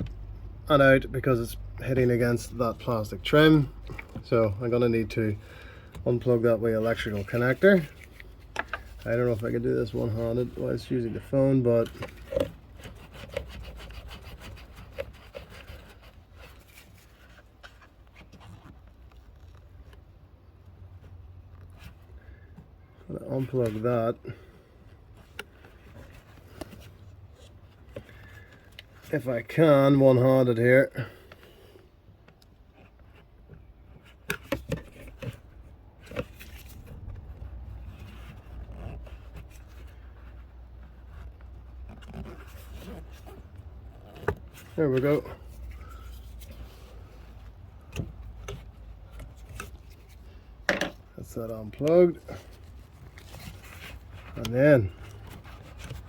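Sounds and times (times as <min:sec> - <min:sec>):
faint rubbing and scraping: 0:00.0 - 0:56.0
hands fumbling at plastic parts: 0:05.5 - 0:20.1, 0:51.8 - 0:56.0.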